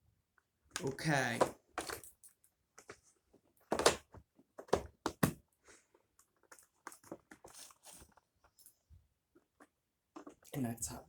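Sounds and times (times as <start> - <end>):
plastic vacuum parts knocking: 0.8 - 2.1, 3.7 - 5.4.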